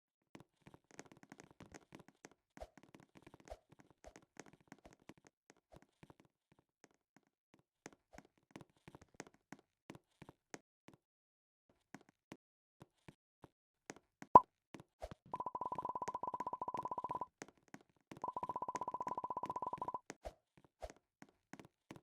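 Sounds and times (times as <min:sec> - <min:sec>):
faint tapping and clicking: 0:15.4 - 0:17.2, 0:18.2 - 0:20.0.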